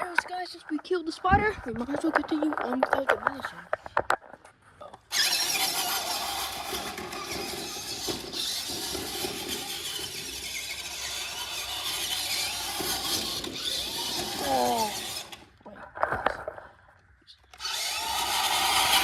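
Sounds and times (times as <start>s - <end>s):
toy truck motor whining: 5.1s - 15.6s, 17.5s - 19.0s.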